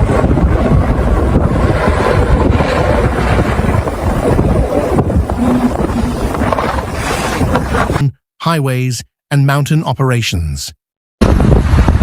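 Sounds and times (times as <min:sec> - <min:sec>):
wind buffeting microphone: 0:00.0 - 0:08.0, 0:11.2 - 0:12.0.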